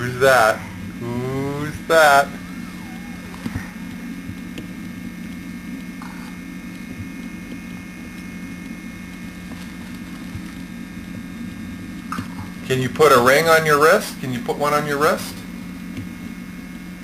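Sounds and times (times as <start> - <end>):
low electrical hum: 0.0 - 17.0
faint clicks and taps: 3.3 - 10.7.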